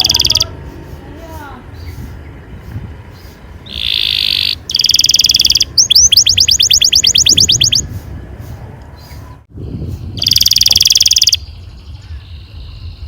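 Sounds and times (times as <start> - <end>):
canary singing trills and whistles: 0.0 - 0.6, 1.6 - 13.0
low background rumble: 0.0 - 10.2.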